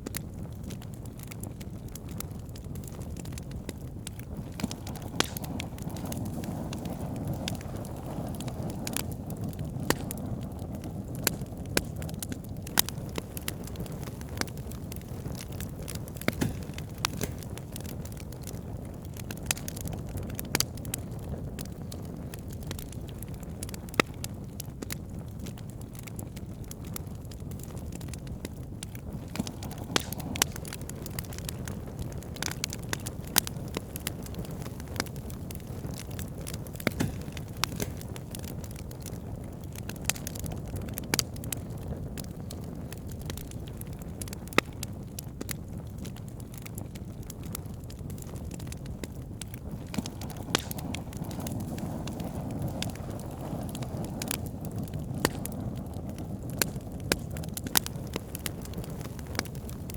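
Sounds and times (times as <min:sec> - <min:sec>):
low rush of flames: 0:00.0 - 0:59.9
wood crackling and popping: 0:00.0 - 0:59.9.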